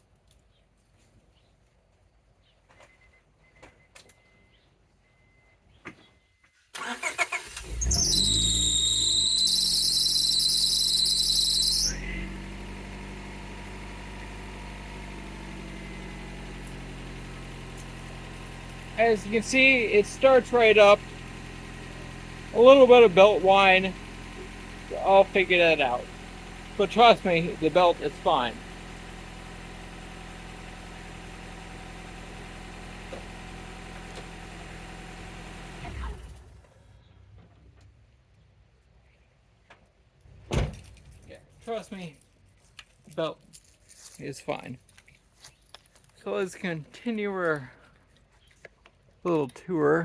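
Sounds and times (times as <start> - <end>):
engine winding down: 6.8 - 36.8
high-pitched belt whine: 7.6 - 29.7
car engine idling: 11.8 - 36.9.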